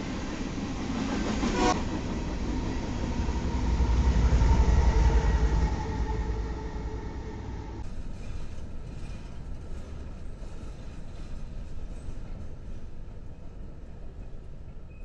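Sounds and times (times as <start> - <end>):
diesel locomotive drone: 0.0 - 8.8
train wheels rumbling on rail: 0.0 - 15.0.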